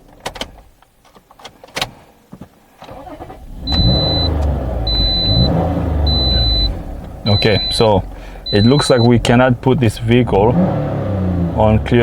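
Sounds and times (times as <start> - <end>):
car engine cranking and starting: 2.8 - 12.0
dashboard warning chime beeping: 3.7 - 9.8.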